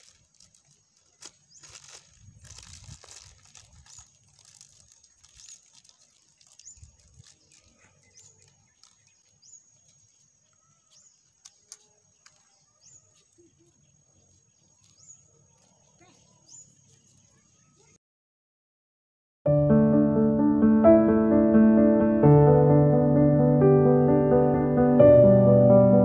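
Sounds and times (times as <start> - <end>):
rustling: 0.0 - 13.4
bird chirping: 3.8 - 18.0.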